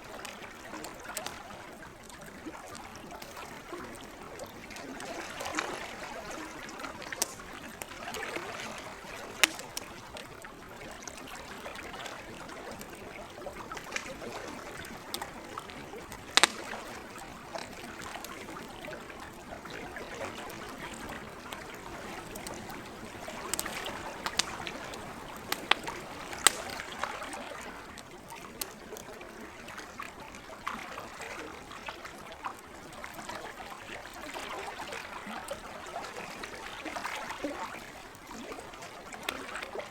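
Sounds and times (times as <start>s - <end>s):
campfire crackling: 0.0s - 30.8s, 31.5s - 39.9s
trickle of lake water: 0.0s - 39.9s
loud pops of fire: 7.2s - 8.2s, 9.0s - 10.0s, 16.1s - 17.4s, 22.2s - 27.0s.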